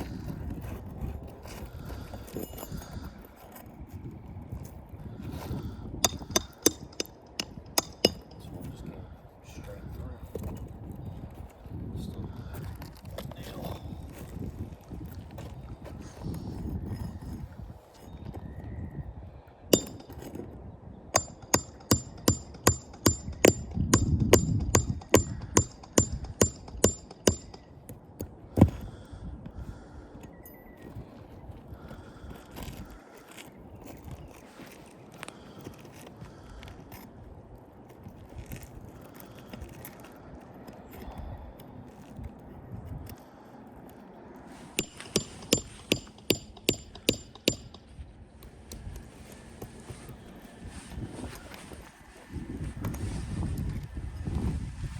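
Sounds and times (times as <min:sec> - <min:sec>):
outdoor background noise: 0:00.0 - 0:54.9
hammer driving nails: 0:06.0 - 0:08.4, 0:19.7 - 0:20.4, 0:21.2 - 0:27.7, 0:44.8 - 0:47.9.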